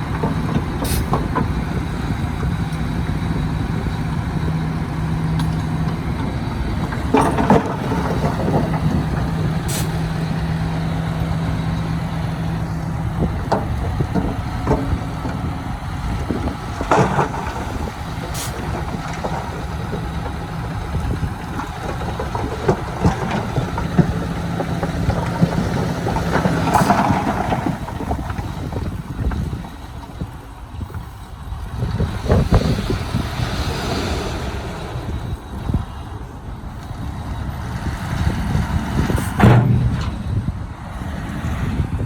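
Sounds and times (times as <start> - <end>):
heavy diesel engine droning: 0.0 - 42.0
metallic clanks and knocks: 5.3 - 30.2, 39.3 - 40.3.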